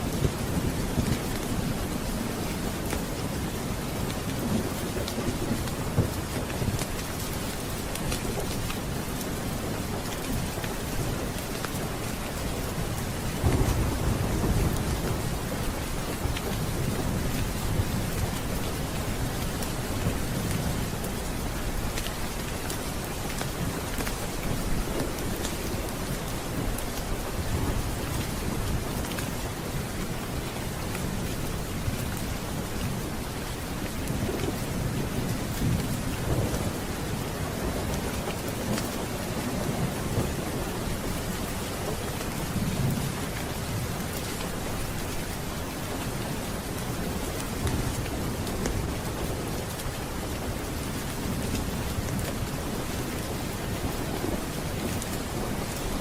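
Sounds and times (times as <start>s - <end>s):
heavy rain: 0.0s - 56.0s
rain drops ticking: 0.0s - 56.0s
thunder rumbling: 12.7s - 21.5s.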